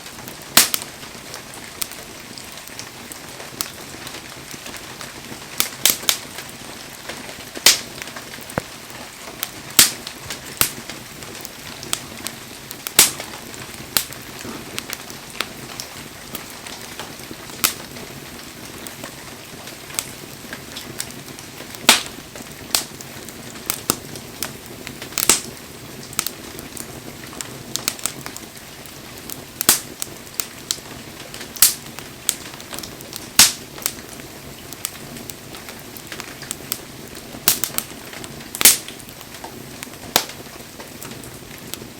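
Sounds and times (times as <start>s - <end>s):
bonfire crackling and popping: 0.0s - 41.9s.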